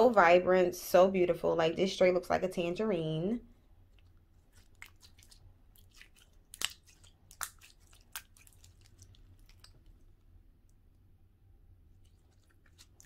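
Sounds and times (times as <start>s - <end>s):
slime squished by hand: 3.9s - 10.8s, 12.0s - 13.0s.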